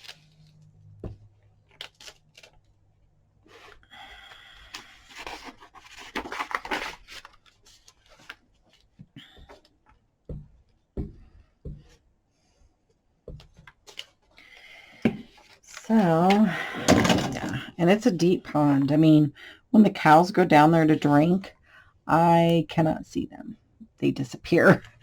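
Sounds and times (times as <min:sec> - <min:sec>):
scraping and rubbing on paper: 0:04.6 - 0:09.0.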